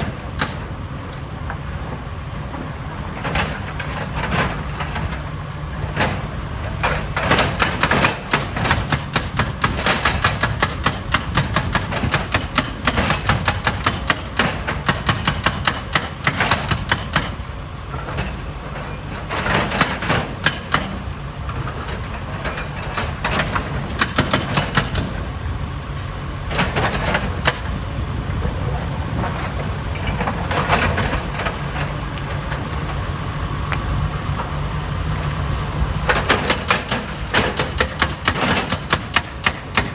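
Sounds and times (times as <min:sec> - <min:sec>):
diesel engine humming: 0:25.0 - 0:39.9.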